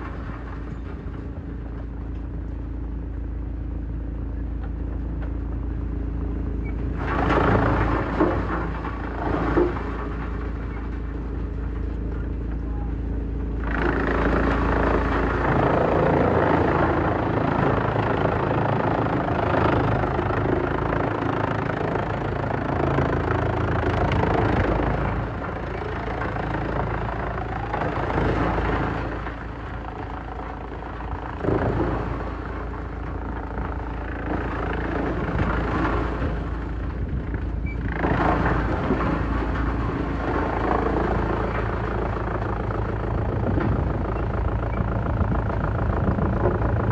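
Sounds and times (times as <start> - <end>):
wood shredder engine drone: 0.0 - 46.9
grinding crunching of wood: 13.2 - 46.9.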